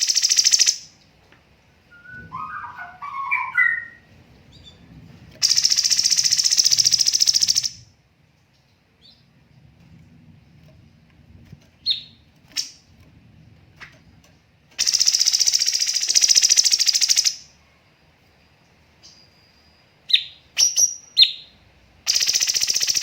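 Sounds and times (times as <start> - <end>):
bird fast rattling trill: 0.0 - 0.8, 5.4 - 7.8, 14.8 - 17.4, 22.1 - 23.0
bird call notes: 1.9 - 4.0.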